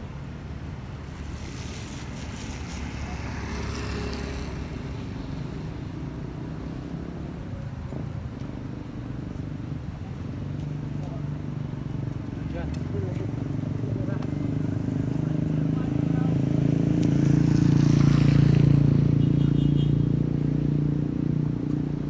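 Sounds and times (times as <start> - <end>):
traffic engine rumble: 0.0 - 22.0
vehicle tyres hissing on wet road: 0.1 - 6.1, 14.5 - 19.0.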